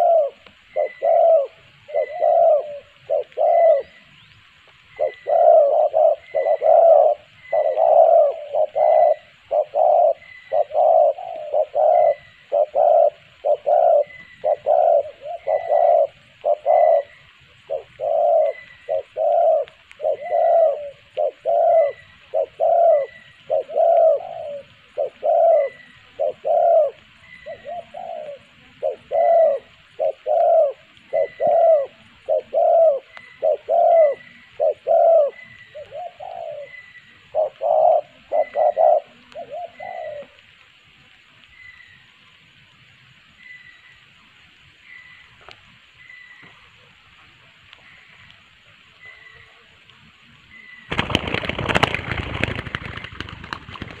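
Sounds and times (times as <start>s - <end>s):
dove cooing: 0.0s - 4.2s, 4.8s - 40.9s.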